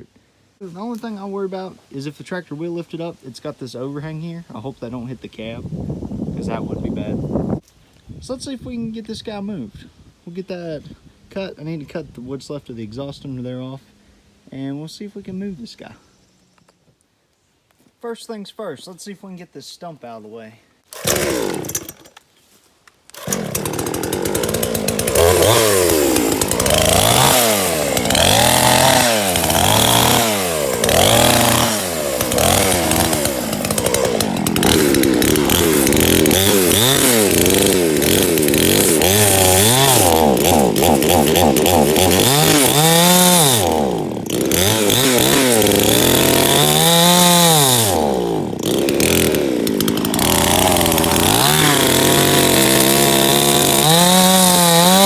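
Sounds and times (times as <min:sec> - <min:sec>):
chainsaw cutting wood: 0:20.8 - 0:22.3, 0:23.1 - 0:55.0.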